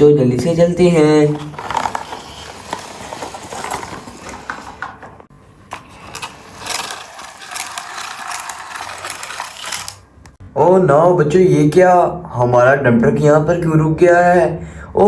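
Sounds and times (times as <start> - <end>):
gears and wheels rattling: 0.9 - 10.0
toy truck motor: 1.3 - 4.9, 5.7 - 10.0.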